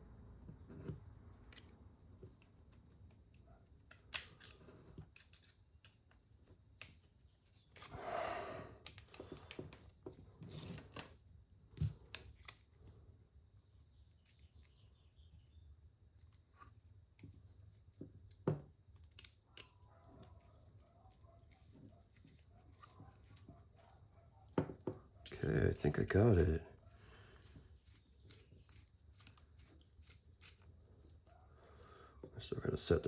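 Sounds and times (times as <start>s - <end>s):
tools and parts clicking: 1.4s - 7.9s, 8.8s - 12.8s, 18.2s - 20.5s, 27.8s - 31.3s.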